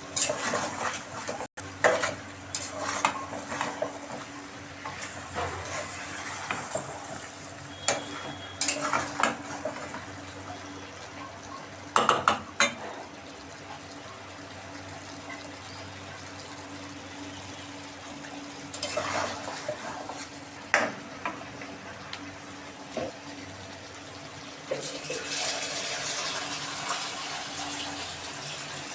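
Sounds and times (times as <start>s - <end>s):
low sizzle: 0.0s - 28.9s
spoon scraping metal pot: 7.8s - 9.4s.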